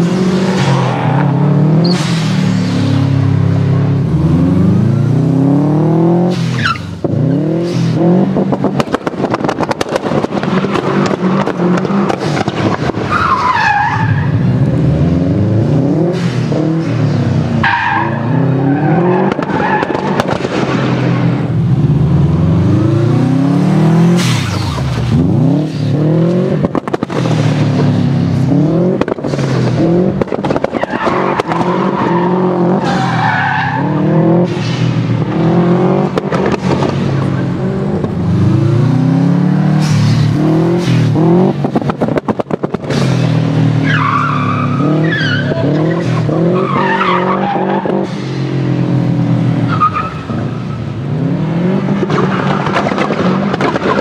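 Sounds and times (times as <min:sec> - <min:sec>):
car engine revving: 0:00.0 - 0:54.0
exhaust pops and bangs: 0:08.4 - 0:13.1, 0:19.2 - 0:21.4, 0:26.5 - 0:27.9, 0:28.9 - 0:32.0, 0:36.0 - 0:37.3, 0:39.8 - 0:44.0, 0:52.0 - 0:54.0
tyres skidding on wet tarmac: 0:09.3 - 0:14.4, 0:17.6 - 0:20.5, 0:30.4 - 0:35.3, 0:43.0 - 0:48.4, 0:49.6 - 0:50.8, 0:51.9 - 0:54.0.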